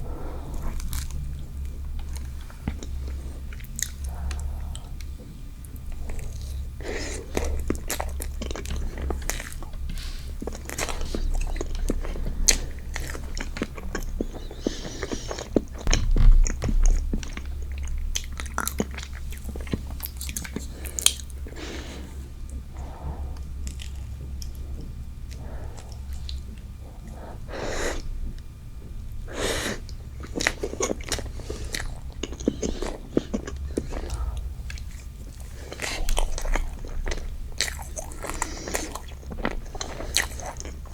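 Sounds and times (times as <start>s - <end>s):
biting and chewing: 0.5s - 21.9s, 30.1s - 40.9s.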